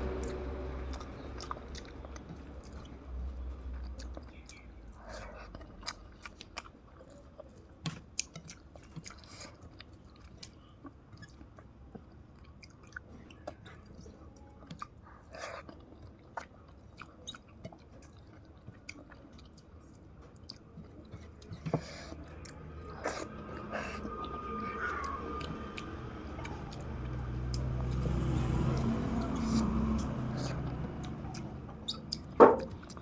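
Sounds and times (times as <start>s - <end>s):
person chewing food: 0.0s - 33.0s.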